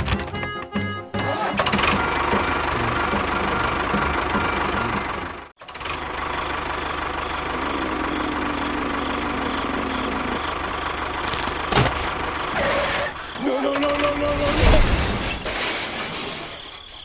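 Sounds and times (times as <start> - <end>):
engine running: 1.6 - 13.3.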